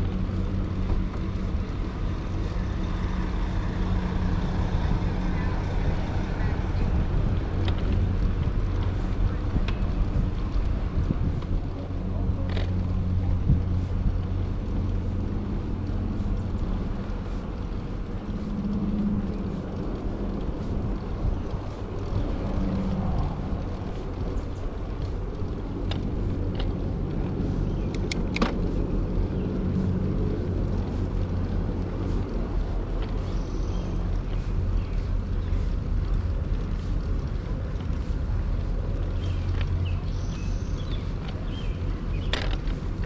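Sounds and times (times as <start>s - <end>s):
wind buffeting microphone: 0.0s - 43.0s
brief clicks: 27.9s - 28.6s.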